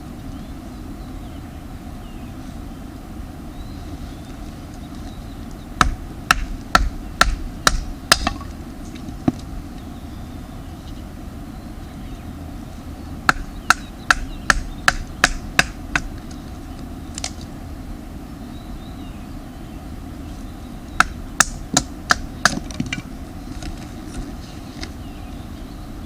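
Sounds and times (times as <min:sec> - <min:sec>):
firewood being chopped: 0:05.8 - 0:09.4, 0:13.3 - 0:16.2, 0:21.0 - 0:23.8.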